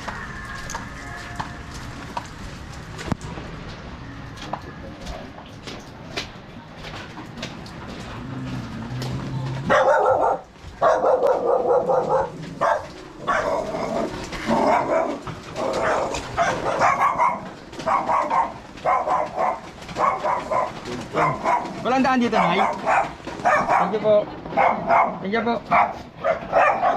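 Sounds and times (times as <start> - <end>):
dog barking: 9.5 - 26.9.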